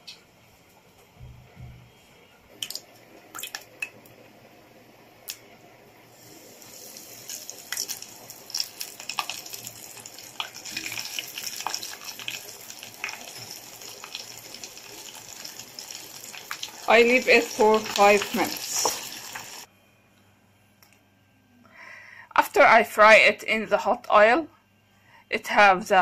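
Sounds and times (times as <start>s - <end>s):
chicken sizzling in frying oil: 6.1s - 19.7s.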